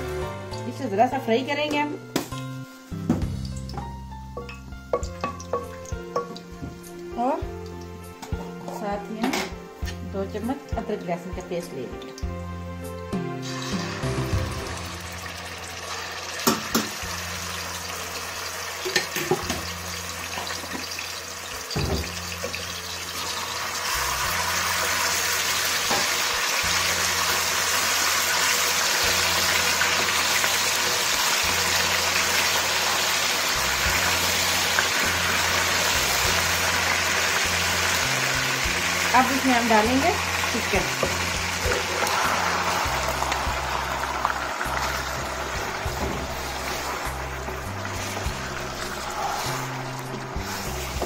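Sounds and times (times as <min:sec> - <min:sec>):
paste sizzling in hot oil: 0:13.2 - 0:51.0.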